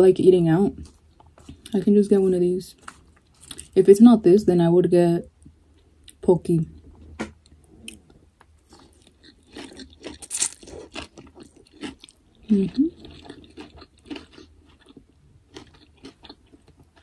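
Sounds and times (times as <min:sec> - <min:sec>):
crunchy chewing: 0:07.8 - 0:17.0.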